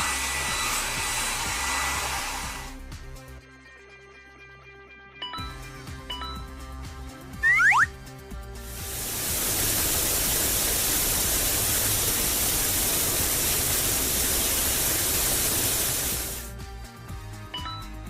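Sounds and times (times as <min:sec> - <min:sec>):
background music: 0:00.3 - 0:18.0
loud hiss: 0:08.7 - 0:16.5.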